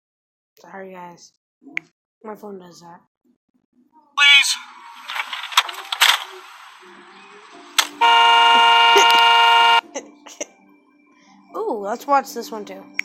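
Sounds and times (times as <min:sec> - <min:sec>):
car horn blast: 0:08.0 - 0:09.8.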